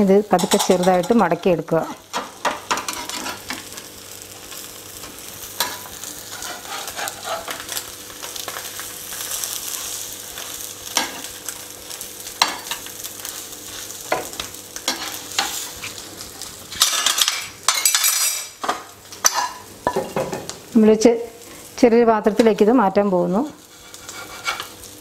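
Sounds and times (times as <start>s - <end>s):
crepe sizzling in oil: 0.0s - 25.0s
metal spatula scraping pan: 2.7s - 3.5s, 5.6s - 7.8s, 23.6s - 24.8s.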